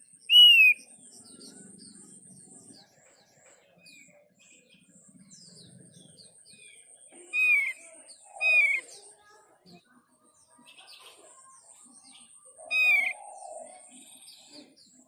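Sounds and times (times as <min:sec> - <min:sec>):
high falling bird chirps: 0:00.0 - 0:02.1, 0:05.5 - 0:09.0, 0:12.7 - 0:13.5.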